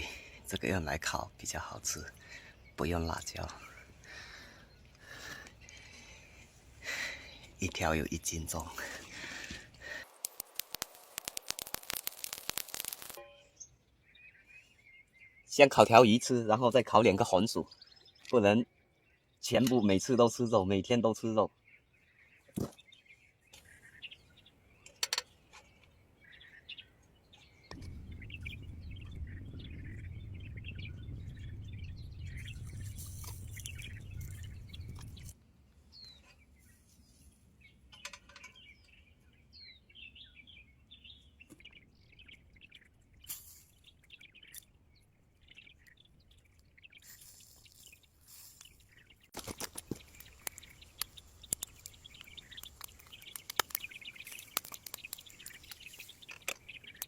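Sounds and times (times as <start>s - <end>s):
small birds chirping: 0.0s - 57.0s
quick clicks and crackles: 9.8s - 13.2s, 47.1s - 57.0s
steady low rumble: 27.8s - 35.3s.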